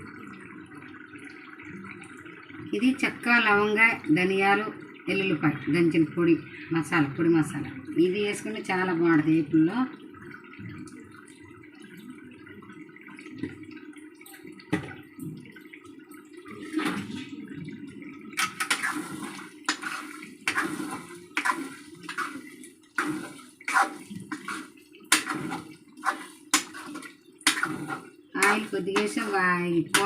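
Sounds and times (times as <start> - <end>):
curry sizzling in oil: 18.3 - 30.0
ladle scraping a pan: 18.4 - 30.0.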